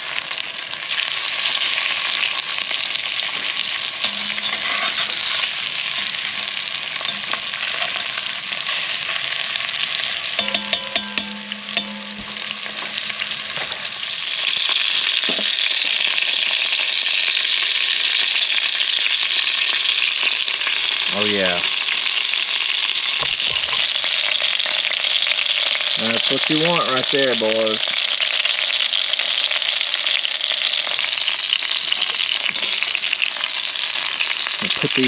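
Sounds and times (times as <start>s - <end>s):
chicken sizzling in oil: 0.0s - 35.0s
metal clinks: 10.4s - 13.9s.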